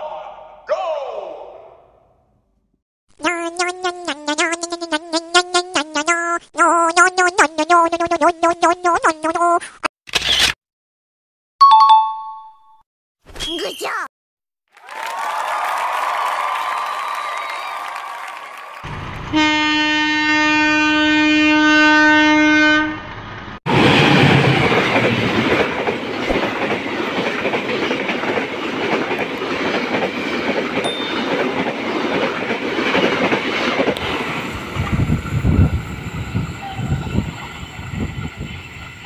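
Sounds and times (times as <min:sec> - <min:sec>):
locomotive horn blast: 0:19.3 - 0:23.0
train coaches rumbling past: 0:23.1 - 0:39.0.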